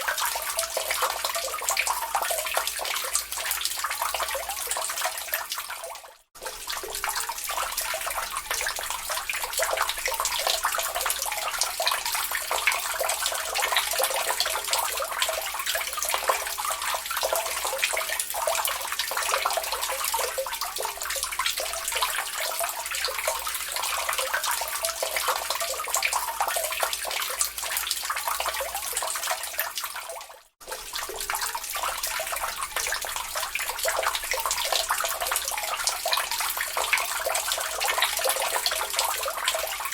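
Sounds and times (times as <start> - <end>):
water dripping into a lake: 0.0 - 39.9.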